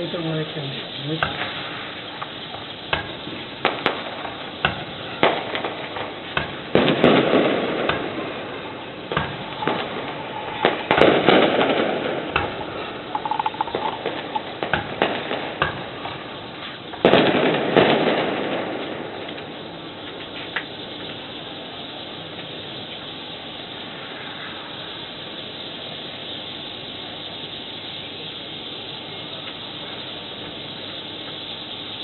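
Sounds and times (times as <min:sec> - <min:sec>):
fireworks cracks and pops: 0:00.0 - 0:21.4, 0:29.4 - 0:31.9
dense crackling: 0:00.0 - 0:22.8
fireworks bursts: 0:00.0 - 0:32.0.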